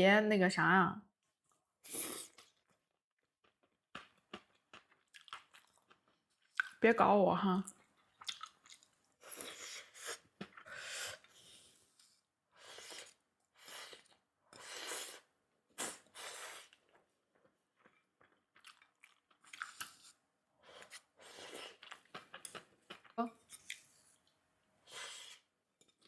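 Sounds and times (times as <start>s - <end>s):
chewing and crunching food: 2.4s - 6.8s, 7.6s - 10.7s, 16.6s - 24.4s.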